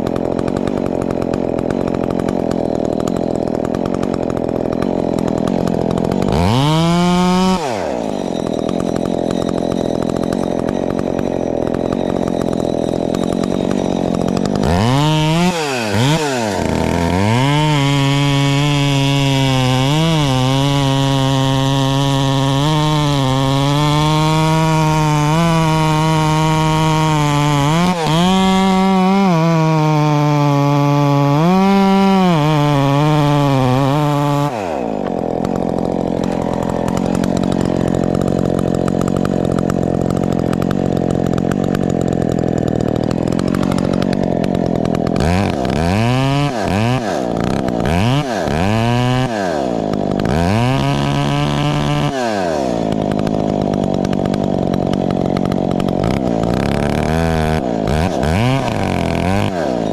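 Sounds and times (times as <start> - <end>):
chainsaw cutting at high revs: 0.0 - 59.9
chainsaw idling: 0.0 - 59.9
chainsaw revving: 0.0 - 59.9.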